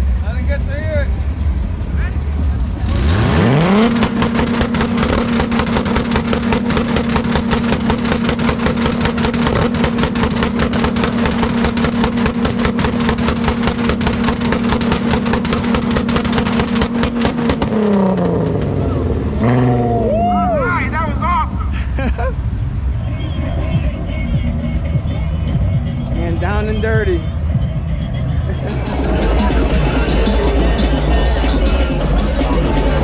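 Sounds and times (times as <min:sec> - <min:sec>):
car engine revving high: 0:02.6 - 0:21.6.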